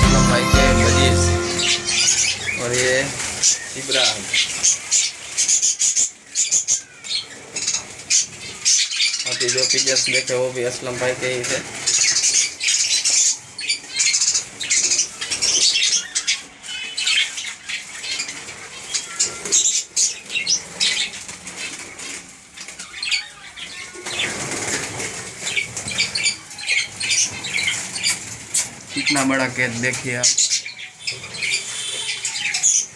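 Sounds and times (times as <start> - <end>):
bird chirps and chatter: 0.0 - 32.9
birds flapping wings: 18.4 - 26.4.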